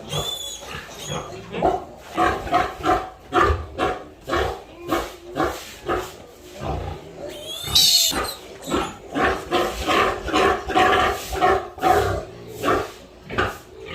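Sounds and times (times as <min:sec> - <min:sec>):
pig squealing: 0:00.0 - 0:01.4, 0:07.2 - 0:09.2
pigs grunting: 0:00.0 - 0:13.9.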